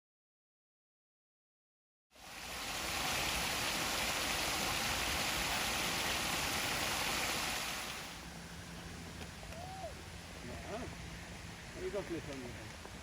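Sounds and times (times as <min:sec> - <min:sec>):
river water pouring over weir: 0:02.2 - 0:08.8.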